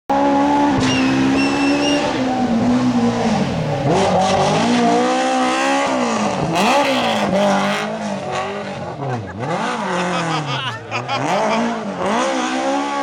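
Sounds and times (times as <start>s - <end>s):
rally car engine revving: 0.1s - 13.0s
high squeal: 0.3s - 4.3s.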